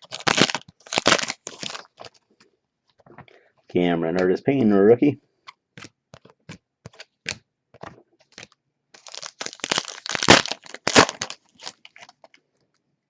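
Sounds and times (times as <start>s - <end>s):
packaging crinkling: 0.0s - 2.2s, 8.2s - 12.7s.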